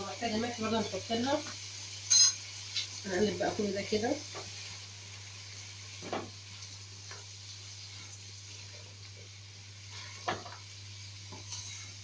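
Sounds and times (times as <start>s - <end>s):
ghee sizzling in a pan: 0.0s - 12.0s
spoon scraping a pan: 2.1s - 2.9s, 11.3s - 12.0s.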